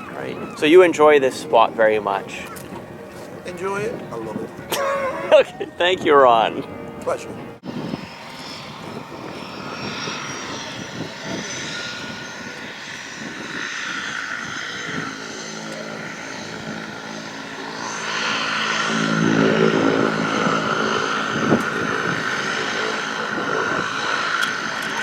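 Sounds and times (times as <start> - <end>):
propeller plane engine running: 6.6 - 25.0.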